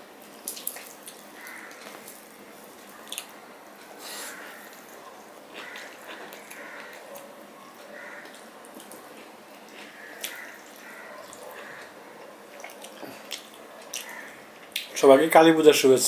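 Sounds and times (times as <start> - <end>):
wet chewing and mouth smacks: 0.2 - 15.0.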